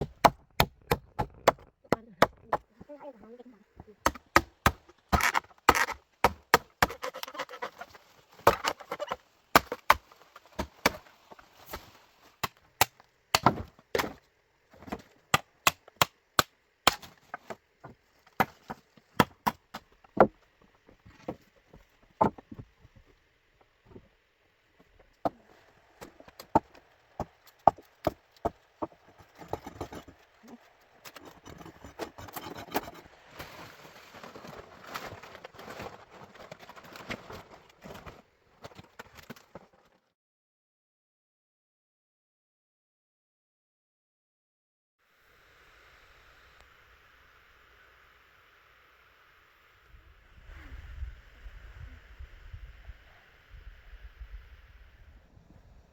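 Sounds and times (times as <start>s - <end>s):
blade chopping bamboo: 4.0s - 11.0s, 12.4s - 14.2s, 14.9s - 17.5s.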